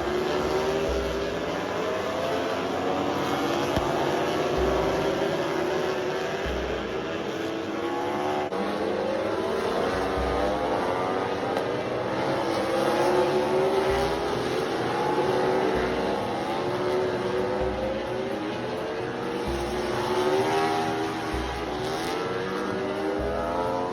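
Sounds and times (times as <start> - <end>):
racing motorcycle engines: 0.0 - 23.9.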